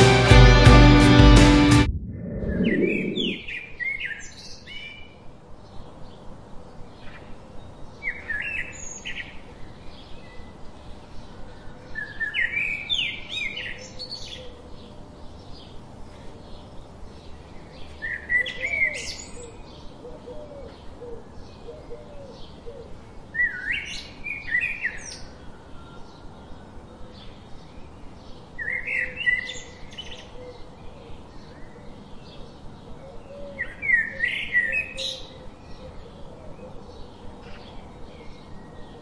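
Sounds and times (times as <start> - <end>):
bird warbling song: 1.9 - 5.0.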